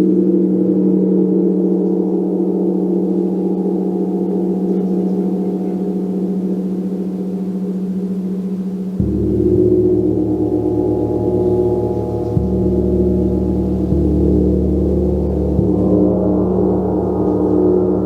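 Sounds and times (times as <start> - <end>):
gong ringing: 0.1 - 18.0.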